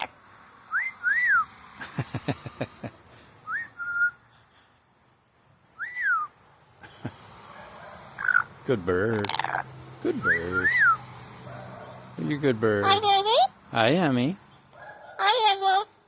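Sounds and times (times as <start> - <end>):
crickets trilling: 0.0 - 16.0
parrot whistling: 3.5 - 4.2, 5.8 - 6.3, 10.2 - 11.0.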